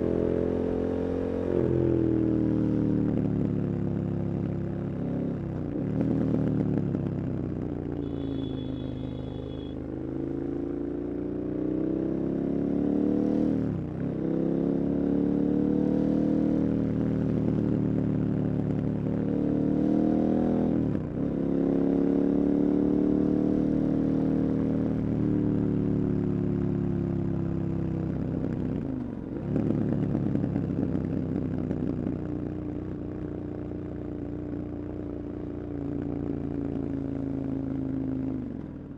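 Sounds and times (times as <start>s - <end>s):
brief high tone: 8.0s - 9.8s.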